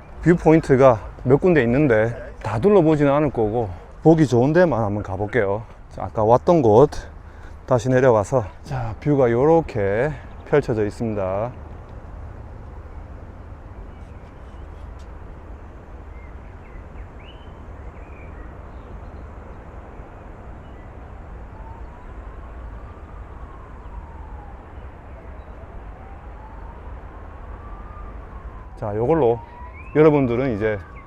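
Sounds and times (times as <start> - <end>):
emergency siren wailing: 0.0 - 5.5, 20.0 - 31.0
low city rumble: 0.0 - 31.0
bird chirps: 13.8 - 22.5, 29.5 - 30.1.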